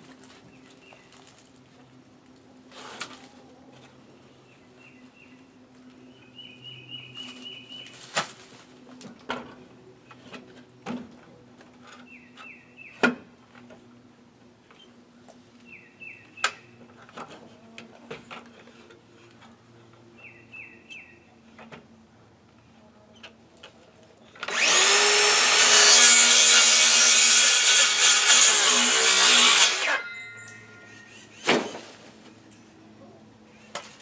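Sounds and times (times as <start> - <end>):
songbird singing: 4.4 - 8.0, 12.0 - 13.0, 15.6 - 16.8, 20.1 - 21.4.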